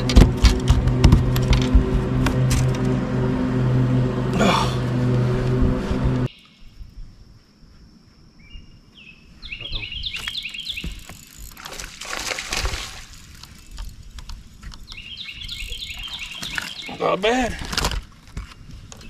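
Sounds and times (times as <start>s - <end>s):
songbird chirping: 6.3s - 11.4s, 13.3s - 17.4s.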